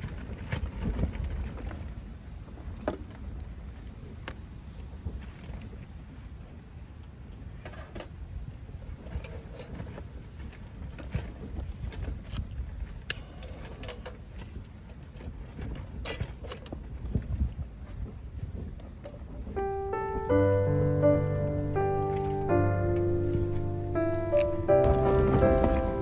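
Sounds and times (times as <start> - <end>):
gusty wind on microphone: 8.2 - 22.6.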